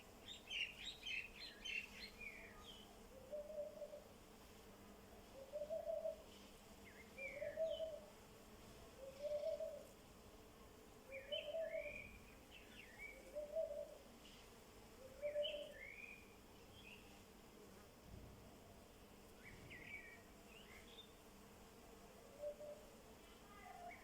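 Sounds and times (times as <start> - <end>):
small birds chirping: 0.2 - 4.0, 6.8 - 8.0, 11.1 - 14.0, 15.1 - 17.2
bird hooting: 3.1 - 4.0, 5.4 - 6.2, 7.2 - 8.1, 9.0 - 9.9, 11.1 - 12.1, 13.1 - 14.0, 15.0 - 15.9, 22.3 - 22.8.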